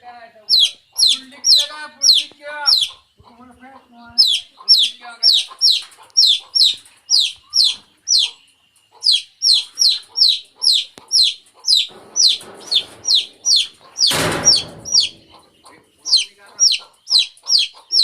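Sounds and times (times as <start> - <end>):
chick peeping: 0.0 - 18.0
rustling: 11.4 - 15.8.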